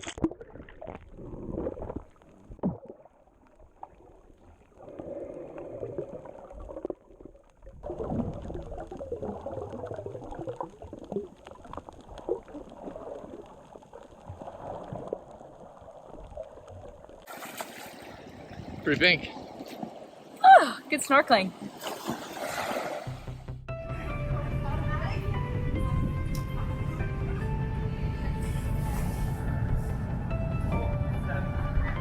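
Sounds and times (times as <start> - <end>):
seawater sloshing and gurgling: 0.0 - 23.4.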